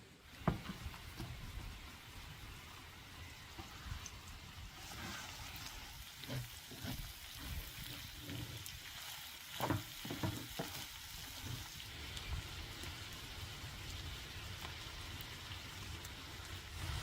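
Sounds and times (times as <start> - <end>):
food sizzling in hot oil: 0.0 - 17.0
utensil knocking in pan: 9.6 - 10.8.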